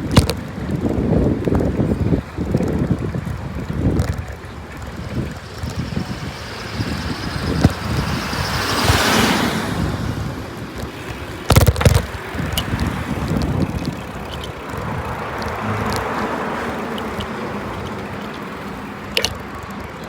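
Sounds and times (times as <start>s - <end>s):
wind buffeting microphone: 0.0s - 20.0s
vehicle passing: 3.4s - 20.0s.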